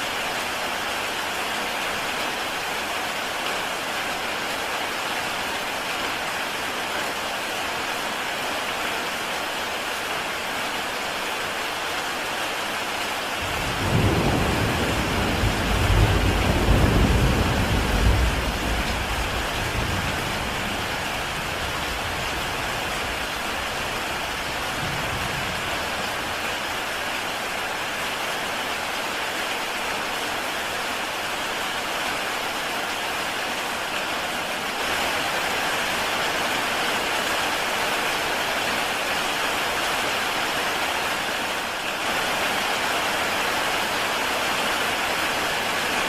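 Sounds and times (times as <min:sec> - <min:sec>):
heavy rain on a tile roof: 0:00.0 - 0:46.0
thunder rumble: 0:13.4 - 0:22.6.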